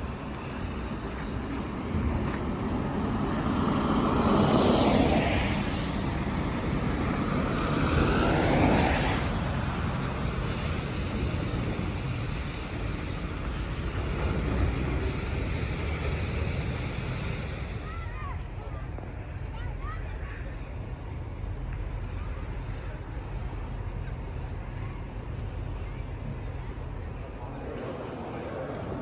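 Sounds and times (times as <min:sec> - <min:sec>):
steady low rumble: 0:00.0 - 0:29.0
vehicle passing: 0:01.1 - 0:17.8.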